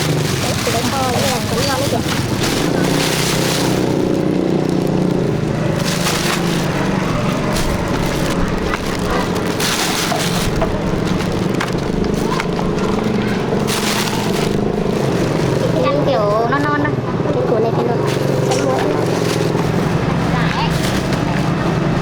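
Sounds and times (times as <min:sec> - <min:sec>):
bursts of rustling: 0:00.0 - 0:16.8, 0:17.9 - 0:22.0
small engine running: 0:00.0 - 0:16.8.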